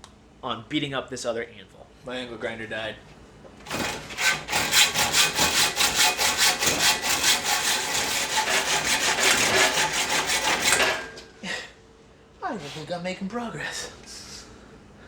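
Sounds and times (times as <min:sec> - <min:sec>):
hacksaw cutting steel: 0:03.7 - 0:11.2.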